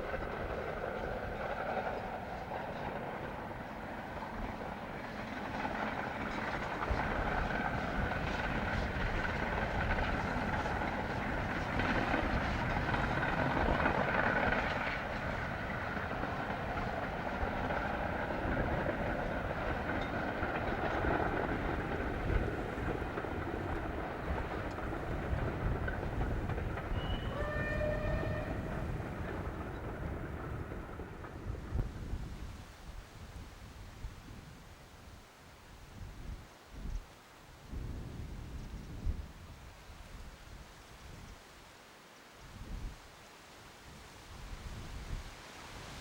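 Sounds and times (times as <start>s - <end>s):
train rumbling on rails: 0.0s - 34.9s.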